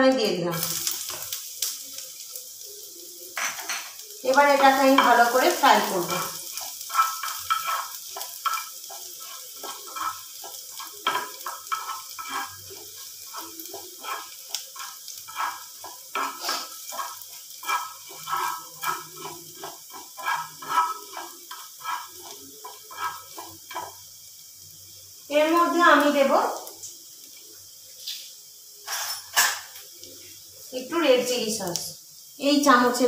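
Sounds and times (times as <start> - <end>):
garlic sizzling in oil: 0.0 - 33.0
spatula scraping a pan: 3.3 - 24.2.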